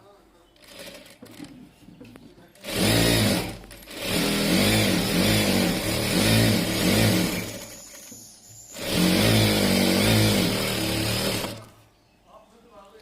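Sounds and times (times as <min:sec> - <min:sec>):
electric sewing machine stitching: 0:00.6 - 0:01.5, 0:02.6 - 0:08.1, 0:08.7 - 0:11.7.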